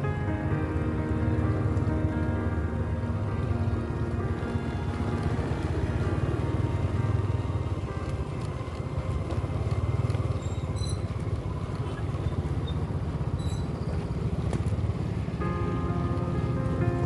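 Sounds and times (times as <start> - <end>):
motorcycle engine running: 0.8 - 17.0.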